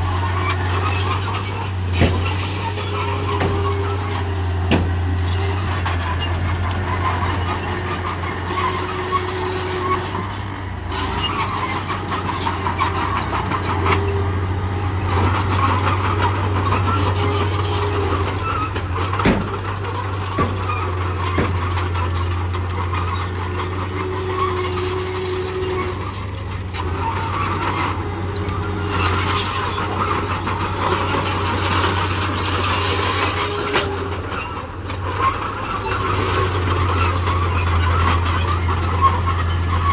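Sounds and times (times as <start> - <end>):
diesel machinery engine drone: 0.0 - 39.9
machinery squeals: 0.0 - 39.9
sharp knocks: 19.2 - 19.6.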